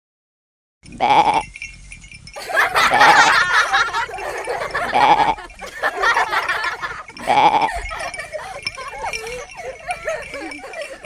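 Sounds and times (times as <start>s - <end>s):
sheep bleating: 1.0s - 1.4s, 4.9s - 5.5s, 7.2s - 7.7s
wavering animal-like vocal sounds: 4.0s - 5.6s, 7.1s - 11.0s.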